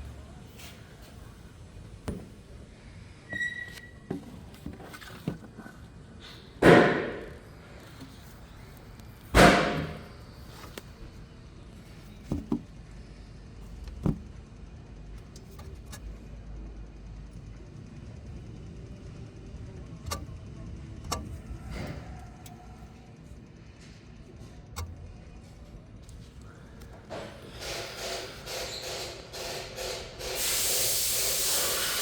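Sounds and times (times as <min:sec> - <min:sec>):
loud thunks: 0:06.6 - 0:07.5, 0:09.3 - 0:10.7
small clicks and knocks: 0:20.0 - 0:20.4.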